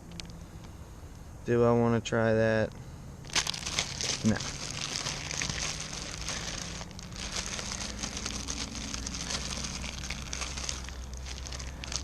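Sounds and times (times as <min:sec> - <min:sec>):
plastic packaging rustling: 0:03.2 - 0:12.0.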